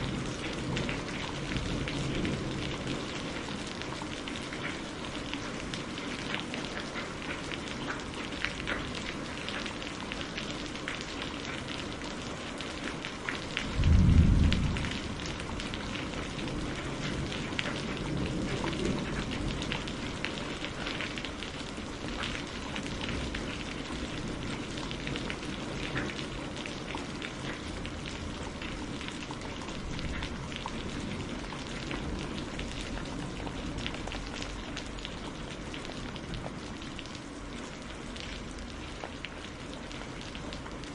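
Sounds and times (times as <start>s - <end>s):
rain pattering: 0.0s - 40.9s
deep rumble: 13.8s - 15.8s.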